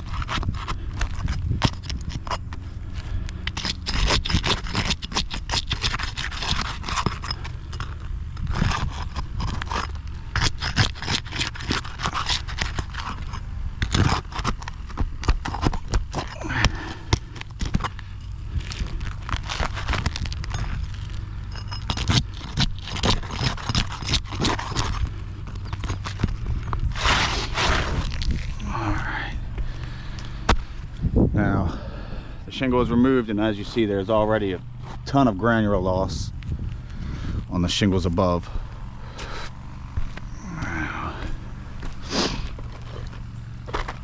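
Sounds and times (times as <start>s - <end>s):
nails being pried out: 0.0s - 2.6s, 3.3s - 27.2s
roof shingle scraping: 0.0s - 30.9s, 32.0s - 44.0s.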